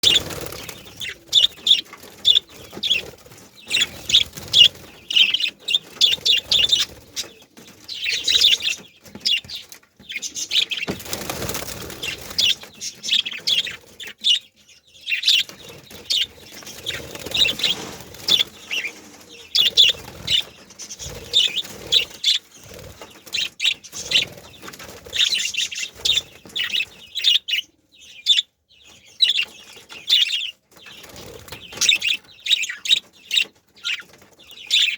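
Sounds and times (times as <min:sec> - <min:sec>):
budgerigars chirping and chattering: 0:00.0 - 0:34.9.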